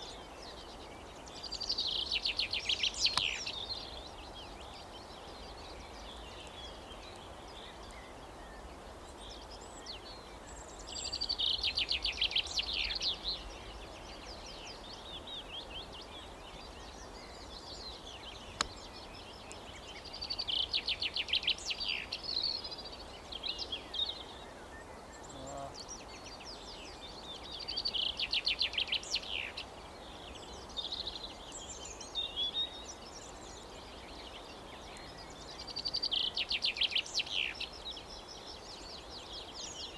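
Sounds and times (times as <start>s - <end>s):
faint bird calls: 25.2s - 25.9s.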